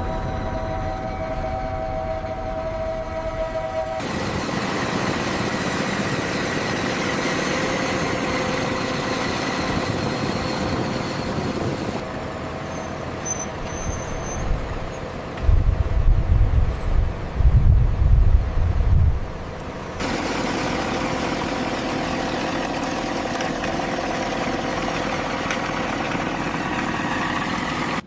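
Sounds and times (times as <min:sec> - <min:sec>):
machine rushing noise with whines: 0:00.0 - 0:12.0, 0:19.9 - 0:28.0
deep low rumble: 0:15.4 - 0:19.4.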